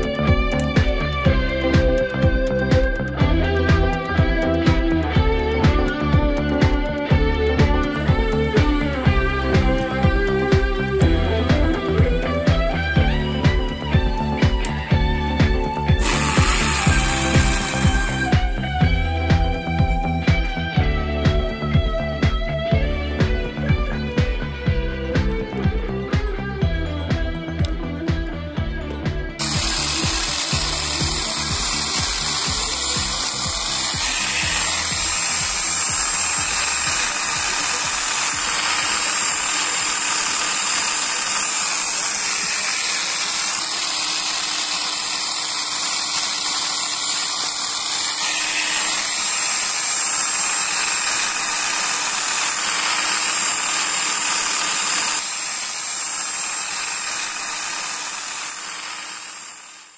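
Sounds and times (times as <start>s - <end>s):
electric drill whining: 0.0s - 59.9s.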